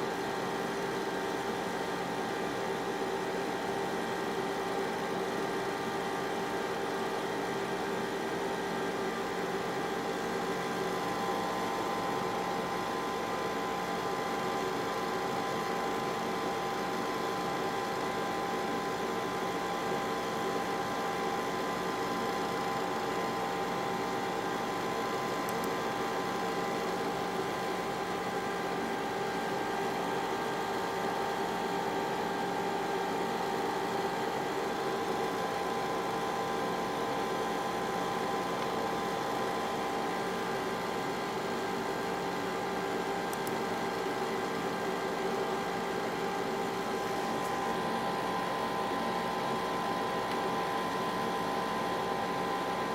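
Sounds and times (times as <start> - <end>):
cooling fans whirring: 0.0 - 52.9.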